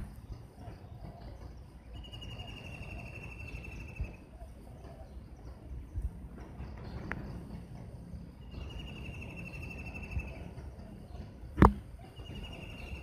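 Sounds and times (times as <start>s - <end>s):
outdoor ambience: 0.0s - 13.0s
soft lower bird calls: 0.0s - 13.0s
bird trilling: 0.6s - 5.2s, 8.4s - 11.3s, 12.0s - 13.0s.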